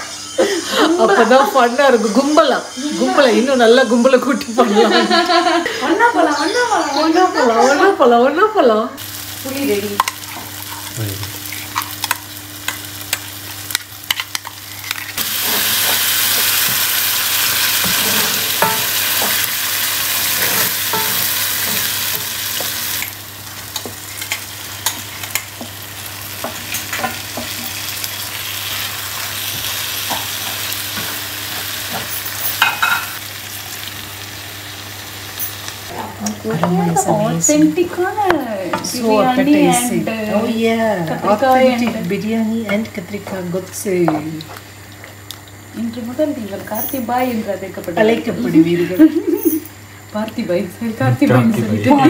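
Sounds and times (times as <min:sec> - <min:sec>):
curry sizzling in a pan: 0:09.0 - 0:50.5.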